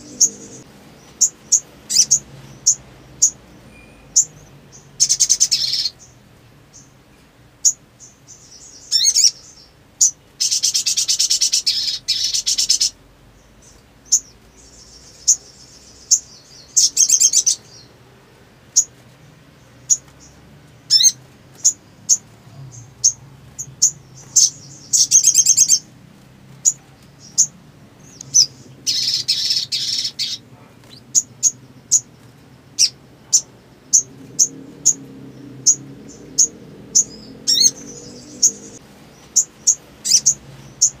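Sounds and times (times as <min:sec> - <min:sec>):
small bird chirping and trilling: 0:00.0 - 0:18.0, 0:18.7 - 0:26.0, 0:26.6 - 0:41.0.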